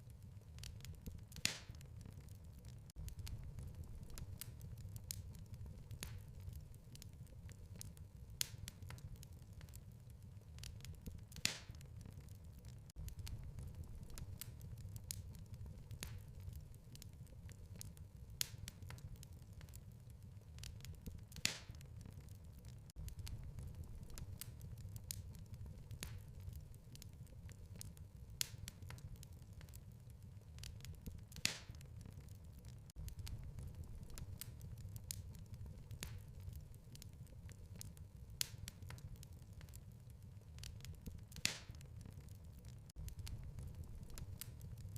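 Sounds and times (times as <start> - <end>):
fireplace fire crackling: 0.0 - 44.9
loud fire pops: 0.6 - 9.8, 10.6 - 19.8, 20.6 - 44.9
low steady rumble: 3.0 - 6.7, 13.0 - 16.7, 23.0 - 26.6, 33.0 - 36.6, 43.0 - 44.9.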